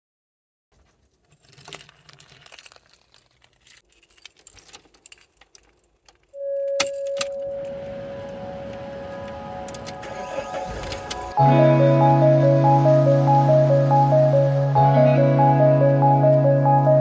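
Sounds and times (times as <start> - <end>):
metallic jingling and clicking: 0.9 - 7.9.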